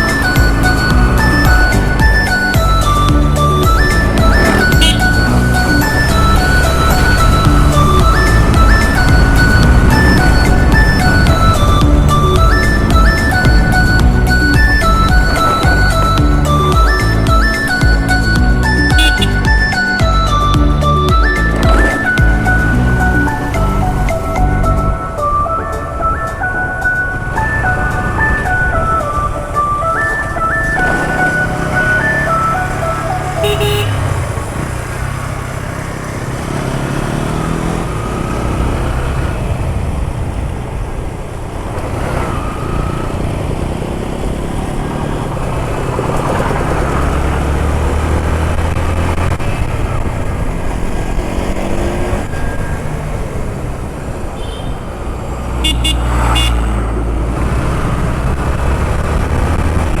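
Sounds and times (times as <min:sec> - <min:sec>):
car horns honking: 0:00.0 - 0:35.2, 0:54.2 - 0:57.0
vehicle engines running: 0:00.0 - 1:00.0.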